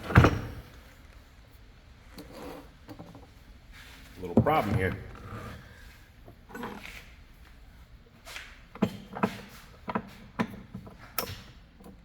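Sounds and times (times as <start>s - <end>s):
tools clicking and knocking: 8.8s - 12.0s.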